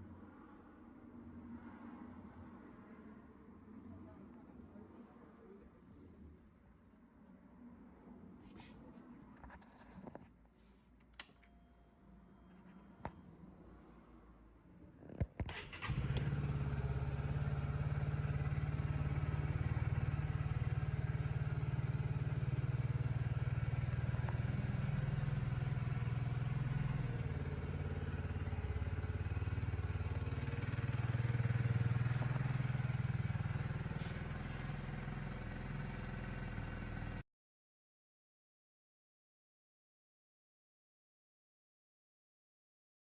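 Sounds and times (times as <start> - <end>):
motorcycle engine starting and idling: 15.4 - 37.2.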